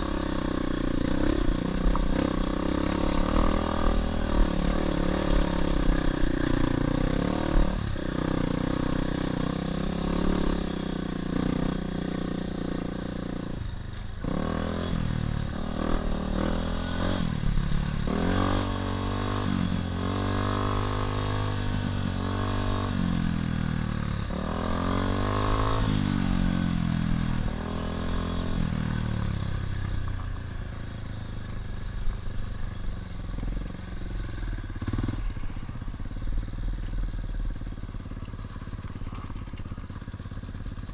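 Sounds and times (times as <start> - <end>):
dirt bike engine revving: 0.0 - 13.5, 14.2 - 26.7, 34.7 - 35.7
clatter over the ground: 38.1 - 40.9.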